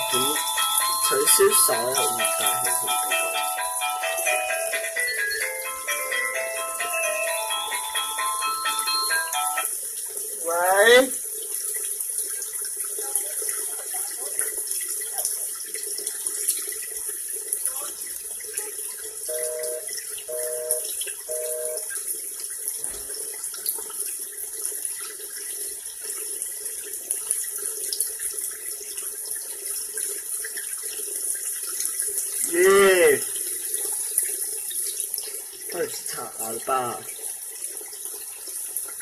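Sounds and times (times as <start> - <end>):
telephone busy tone: 0.0 - 9.7, 19.3 - 21.9
steady hiss like running water: 9.8 - 39.0.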